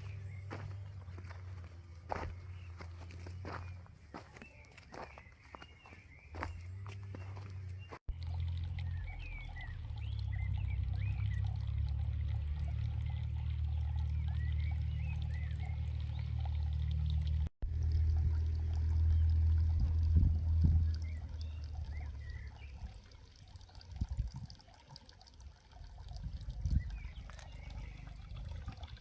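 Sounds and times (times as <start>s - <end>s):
bird chirps: 0.0s - 8.0s, 8.8s - 11.6s
water running: 0.0s - 29.0s.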